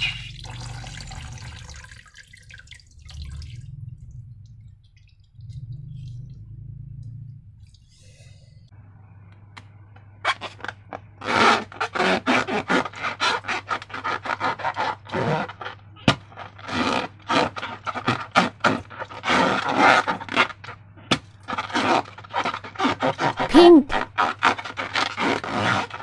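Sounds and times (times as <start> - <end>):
slime scraping strokes: 10.3 - 20.8, 21.4 - 26.0.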